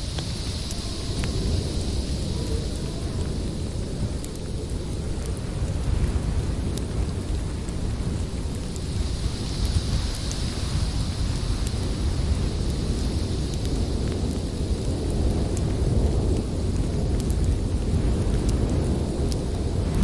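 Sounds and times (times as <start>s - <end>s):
snowstorm wind rumbling: 0.0s - 20.0s
whistling wind howl: 0.0s - 20.0s
wood fire crackling: 0.0s - 20.0s.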